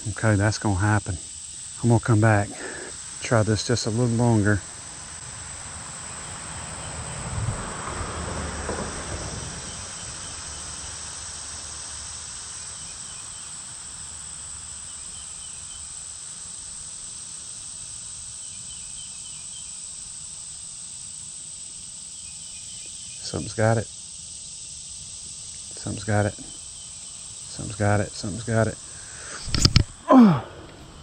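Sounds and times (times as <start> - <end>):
high-pitched insect drone: 0.0 - 31.0
faint chirping trills: 9.6 - 16.3, 18.2 - 20.3, 21.6 - 31.0
soft rustles and bumps: 29.4 - 30.0.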